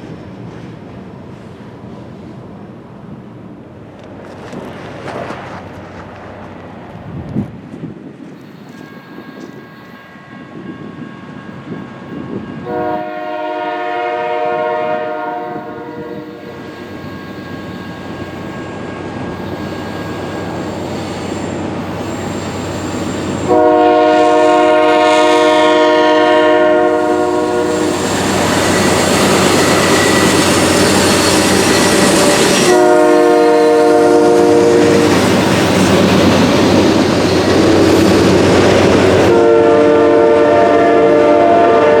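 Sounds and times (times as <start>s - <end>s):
freight train rumbling: 0.0s - 42.0s
locomotive air horn blasts: 12.6s - 16.7s, 23.4s - 28.8s, 32.4s - 35.1s, 39.2s - 42.0s.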